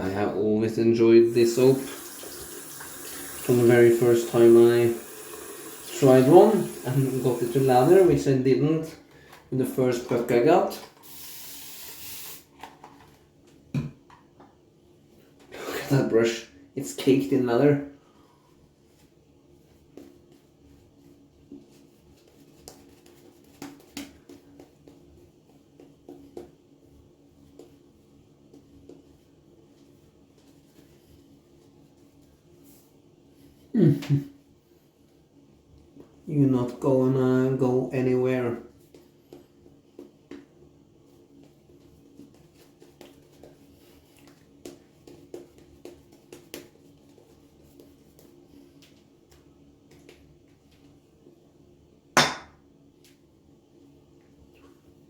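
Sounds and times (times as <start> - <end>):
razor scratching during shave: 1.6 - 8.1.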